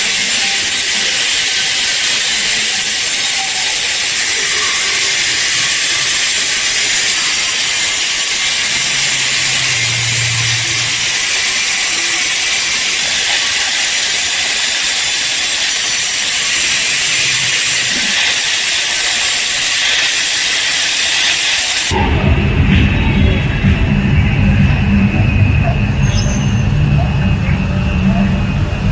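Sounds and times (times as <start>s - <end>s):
compressed-air tool hissing: 0.0s - 22.0s.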